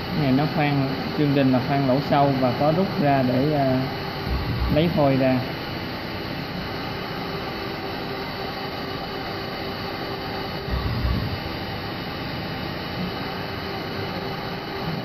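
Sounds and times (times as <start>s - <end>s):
lathe machine whir: 0.0s - 15.0s
loud low thump: 4.3s - 4.8s, 10.7s - 11.4s.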